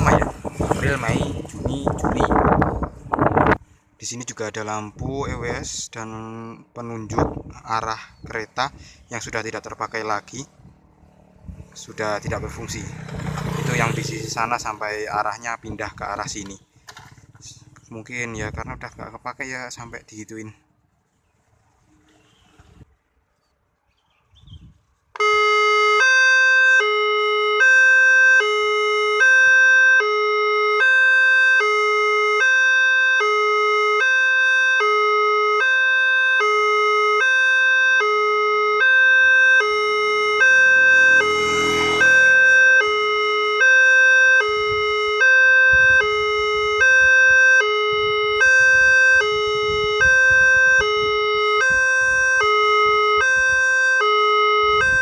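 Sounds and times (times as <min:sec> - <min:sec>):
two-tone crossing alarm: 0:25.2 - 0:55.0.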